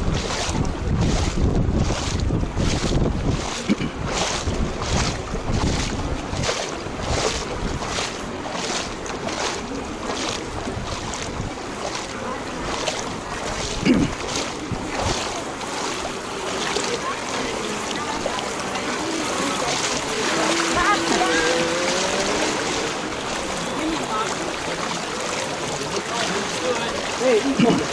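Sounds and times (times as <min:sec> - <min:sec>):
footsteps splashing through water: 0:00.0 - 0:27.9.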